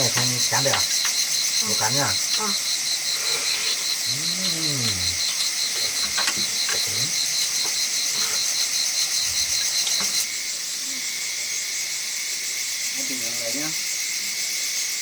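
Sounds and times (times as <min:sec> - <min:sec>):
insects chirping: 0:00.0 - 0:15.0
short falling vocal sound: 0:04.0 - 0:05.2.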